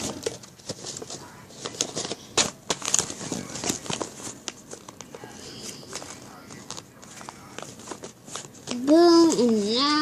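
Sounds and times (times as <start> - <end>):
paper crinkling and rustling: 0.0 - 10.0.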